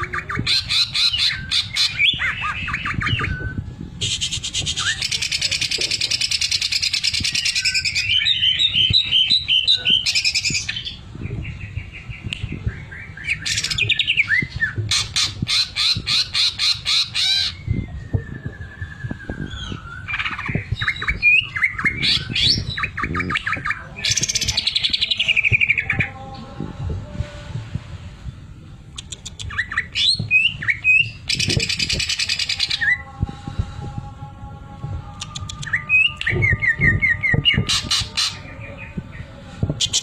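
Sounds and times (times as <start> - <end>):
bird singing trills and whistles: 0.0 - 26.2, 29.0 - 33.1.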